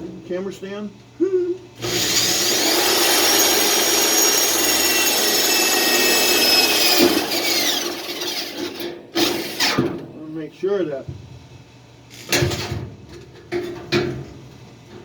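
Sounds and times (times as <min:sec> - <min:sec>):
electric drill whining: 0:01.8 - 0:09.8.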